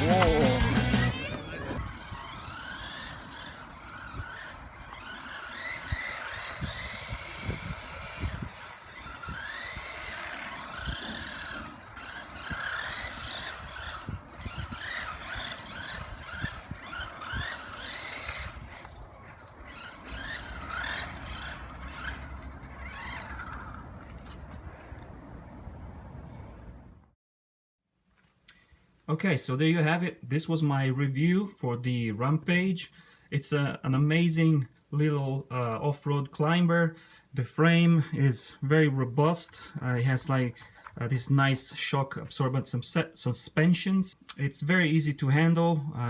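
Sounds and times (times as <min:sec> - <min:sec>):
electric motor and gears whining: 0:00.0 - 0:25.2.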